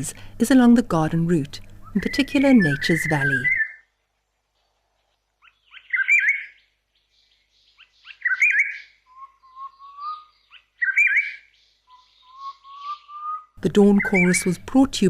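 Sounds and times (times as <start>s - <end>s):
robin-chat warbled whistles: 1.8s - 3.8s, 5.7s - 6.6s, 8.0s - 14.6s.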